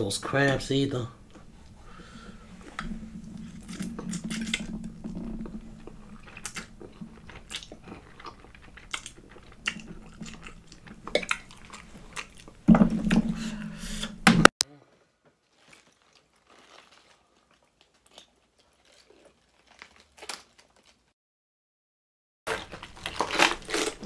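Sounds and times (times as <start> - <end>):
chewing and slurping: 1.6 - 13.6.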